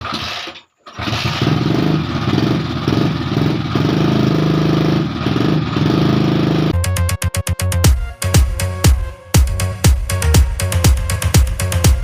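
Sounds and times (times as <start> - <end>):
engine idling: 0.0 - 6.8.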